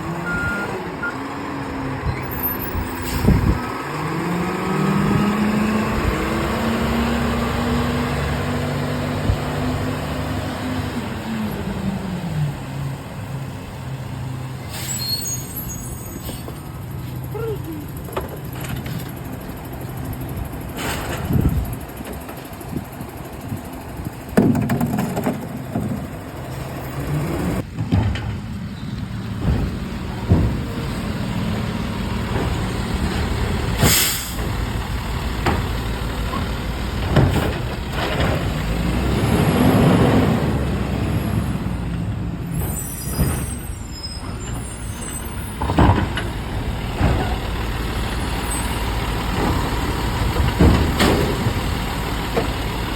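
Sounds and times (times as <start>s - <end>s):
garbage truck engine humming: 0.0s - 52.9s
air brake hiss: 14.7s - 15.7s, 33.8s - 34.4s
bangs and clanks: 27.6s - 28.6s.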